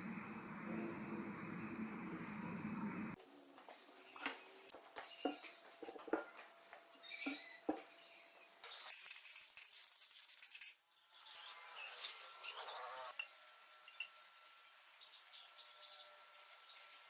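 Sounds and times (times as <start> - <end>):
small metal parts clinking: 8.7 - 10.8.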